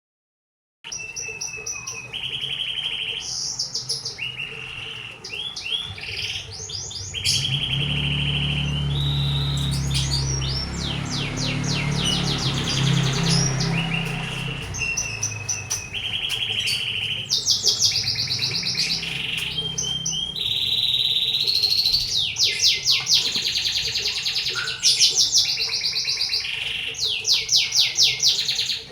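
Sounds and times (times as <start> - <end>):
canary singing trills: 0.9 - 28.9
low hum: 6.9 - 22.2.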